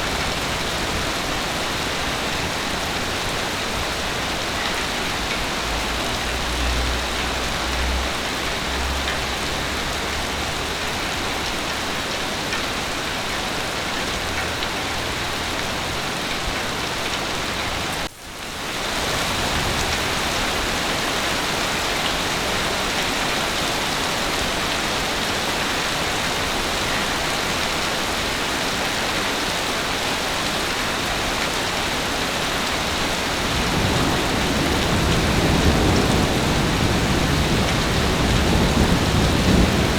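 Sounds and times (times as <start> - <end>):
heavy rain falling: 0.0 - 39.9
low rumble of thunder: 32.8 - 39.9.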